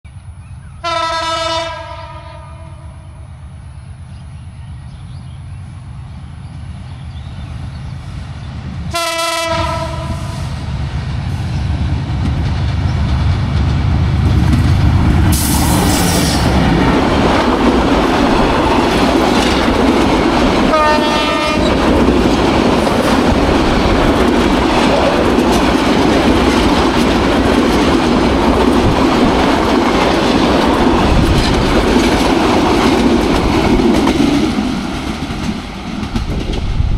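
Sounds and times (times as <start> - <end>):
train rumbling past: 0.1 - 36.9
locomotive horn: 0.8 - 3.1, 8.9 - 10.5, 20.7 - 21.8.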